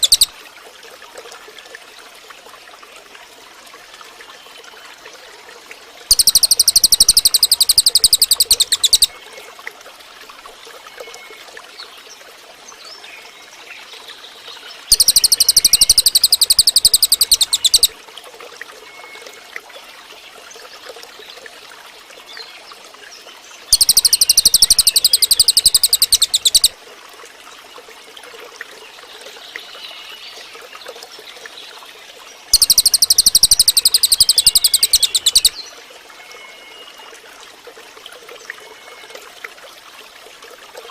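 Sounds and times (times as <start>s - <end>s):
bird buzzy trill: 0.0s - 0.3s, 6.1s - 9.1s, 14.9s - 17.9s, 23.7s - 26.7s, 32.5s - 35.5s
water trickling: 0.0s - 40.9s.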